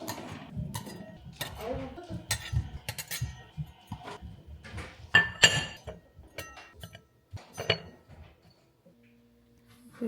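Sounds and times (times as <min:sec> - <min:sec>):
glassware clinking: 0:05.1 - 0:08.2.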